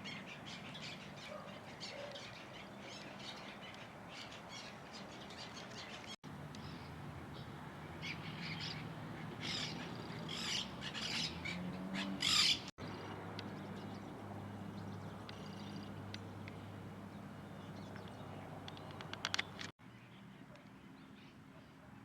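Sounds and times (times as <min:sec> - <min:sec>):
faint bird sounds: 0:00.0 - 0:22.0
birds rasping crow-like calls: 0:08.0 - 0:19.7.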